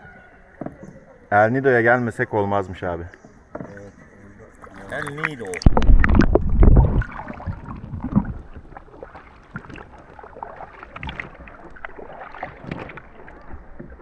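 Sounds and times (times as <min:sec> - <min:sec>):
water lapping and splashing: 0:03.1 - 0:14.0.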